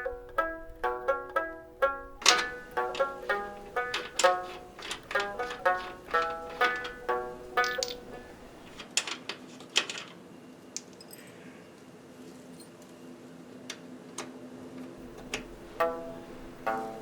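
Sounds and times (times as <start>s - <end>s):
light clinks: 7.6s - 9.2s, 10.8s - 11.4s.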